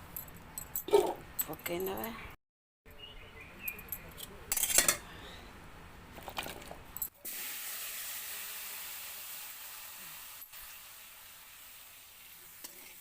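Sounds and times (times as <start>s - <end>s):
potatoes sizzling in hot oil: 7.2s - 13.0s.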